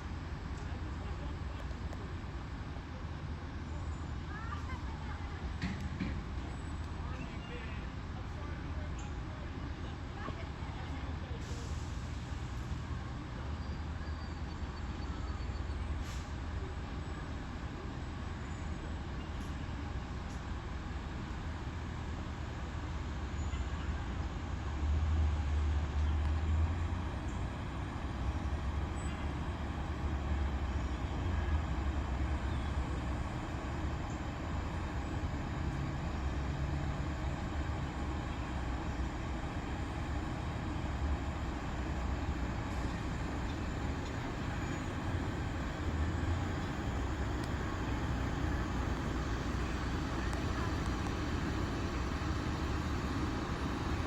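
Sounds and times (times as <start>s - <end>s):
diesel truck engine passing: 24.5s - 54.0s.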